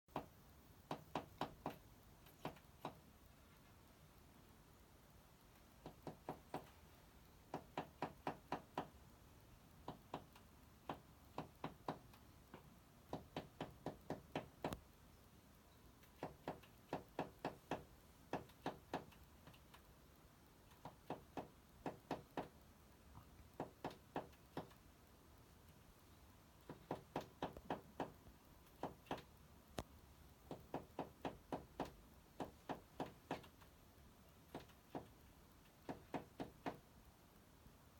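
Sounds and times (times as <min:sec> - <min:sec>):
bird beak tapping on glass: 0:09.8 - 0:14.8, 0:16.0 - 0:19.6, 0:23.6 - 0:24.7, 0:26.7 - 0:29.3, 0:30.5 - 0:33.5, 0:34.5 - 0:36.8.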